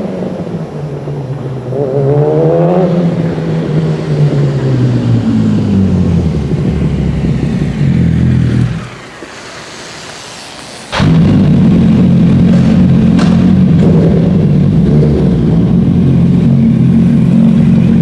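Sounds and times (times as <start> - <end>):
motorcycle engine revving: 10.9 - 18.0.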